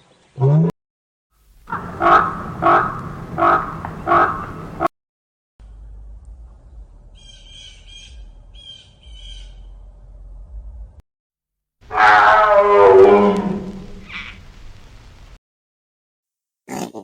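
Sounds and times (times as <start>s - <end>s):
large bird squawking: 1.7s - 4.9s, 11.9s - 14.4s
low rumble: 1.7s - 4.9s.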